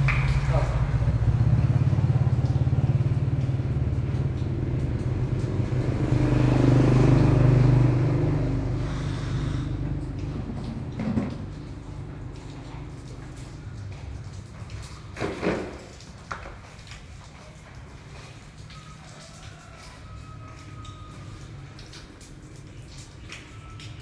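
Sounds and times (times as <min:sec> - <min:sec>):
vehicle engine humming: 0:00.0 - 0:15.2.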